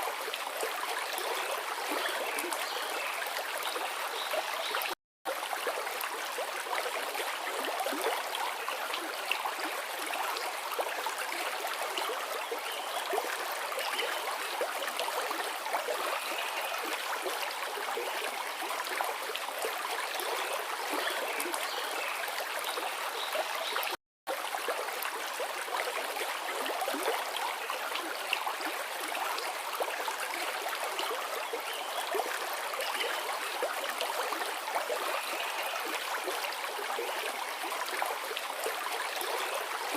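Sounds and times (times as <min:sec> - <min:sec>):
river flowing: 0:00.0 - 0:39.9.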